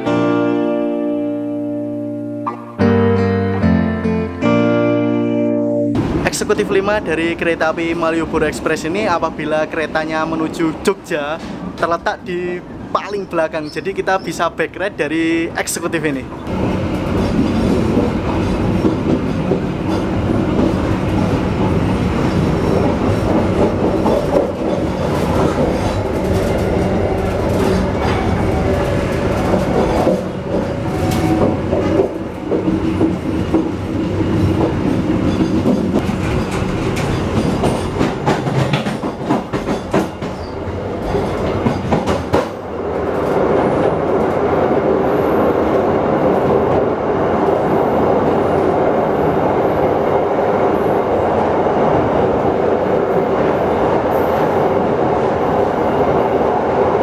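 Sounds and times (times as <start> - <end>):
train wheels rumbling on rails: 6.0 - 13.4, 15.2 - 57.0
train ringing on steel bridge: 15.1 - 57.0.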